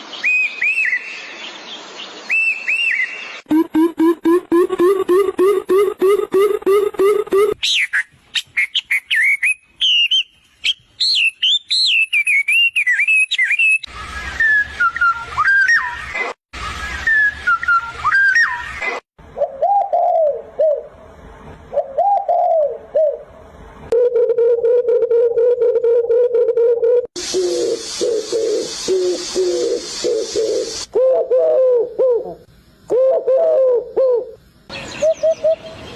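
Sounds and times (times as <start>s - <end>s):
bird calls and songs: 0.0s - 3.5s, 7.6s - 16.2s, 34.7s - 35.9s
steady low bird trill: 33.0s - 35.9s.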